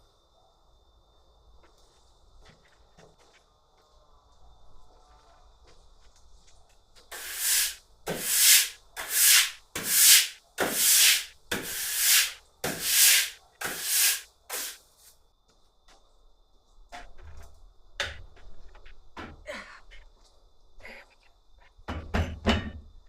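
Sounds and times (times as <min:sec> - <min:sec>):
rough rubbing strokes: 0:07.1 - 0:14.8.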